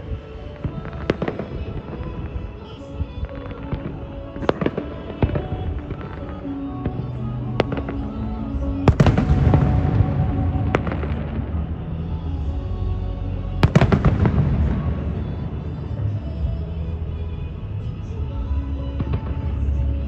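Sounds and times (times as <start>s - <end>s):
fireworks bursting: 0.0s - 12.5s, 13.6s - 16.5s
background music: 0.0s - 20.0s.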